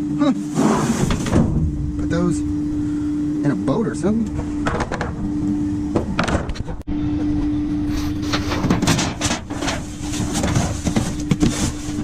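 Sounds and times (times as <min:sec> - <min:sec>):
steady low hum: 0:00.0 - 0:12.0
junk clattering and rustling: 0:00.5 - 0:02.1, 0:04.2 - 0:06.9, 0:08.0 - 0:12.0.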